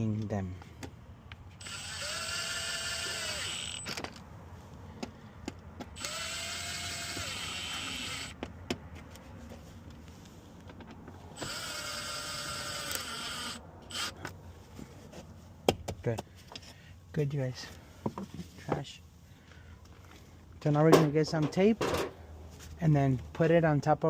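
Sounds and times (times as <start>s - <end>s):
power drill driving fasteners: 1.5s - 4.2s, 5.9s - 8.4s, 11.3s - 14.3s.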